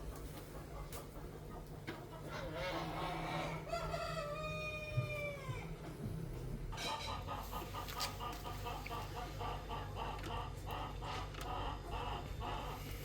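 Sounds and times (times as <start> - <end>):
steady low hum: 0.0 - 13.0
rooster crowing: 3.0 - 5.7.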